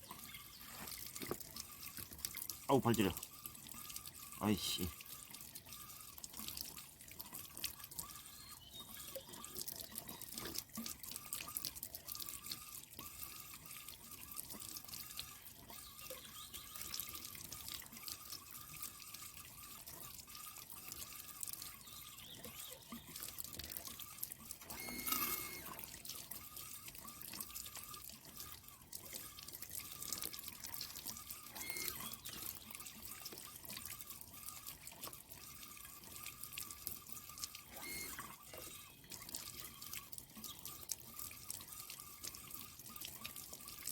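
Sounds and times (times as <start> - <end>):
water trickling and dripping: 0.0 - 43.9.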